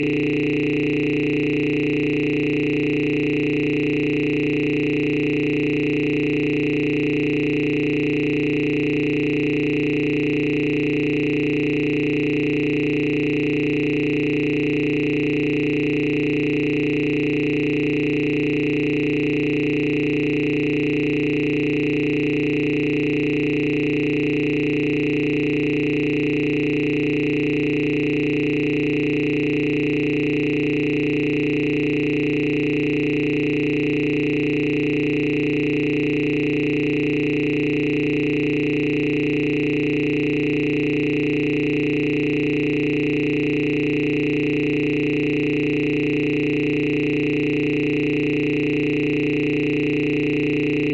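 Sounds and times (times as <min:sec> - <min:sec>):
electronic drone of held tones: 0:00.0 - 0:24.8.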